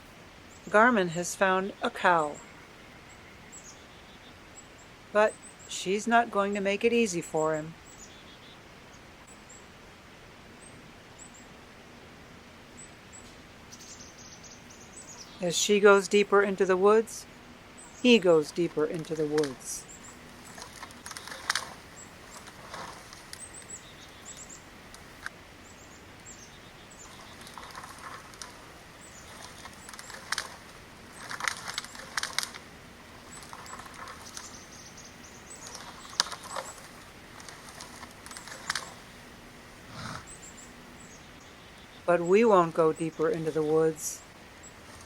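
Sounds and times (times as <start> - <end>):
brush and twigs crackling: 13.2 - 45.0.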